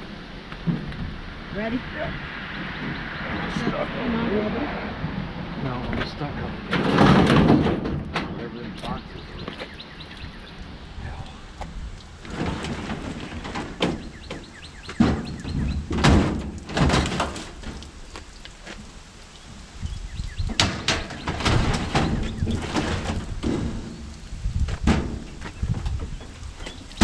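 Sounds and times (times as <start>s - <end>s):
thuds and clunks: 0.5s - 1.2s, 5.9s - 9.7s, 11.6s - 17.9s, 20.4s - 27.0s.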